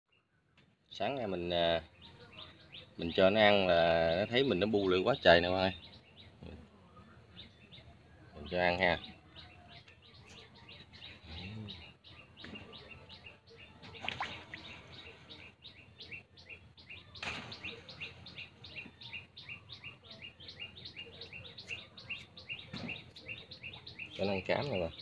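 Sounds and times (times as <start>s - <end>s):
bird chirping: 1.0s - 25.0s.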